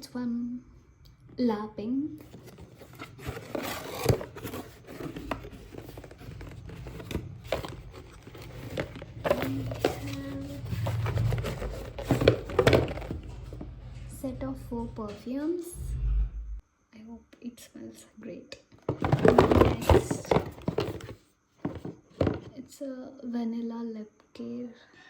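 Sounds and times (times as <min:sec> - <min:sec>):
packaging crinkling and rustling: 0:02.2 - 0:13.7, 0:18.9 - 0:22.4.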